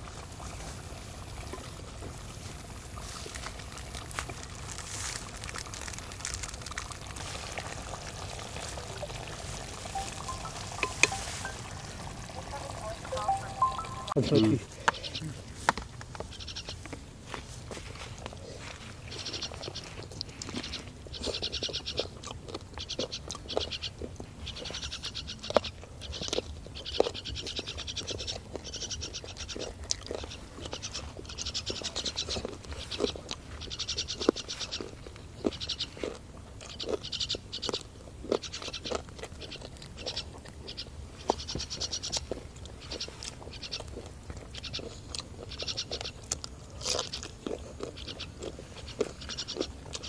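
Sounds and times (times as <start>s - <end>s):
person chewing and crunching: 3.0s - 11.2s, 15.8s - 50.0s
high pulsing chirping: 9.9s - 14.5s.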